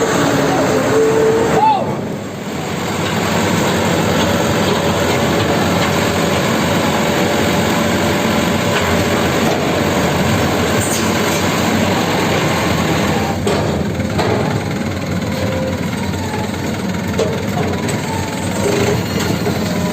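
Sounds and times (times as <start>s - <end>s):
heavy diesel machinery rumbling: 0.0s - 19.9s.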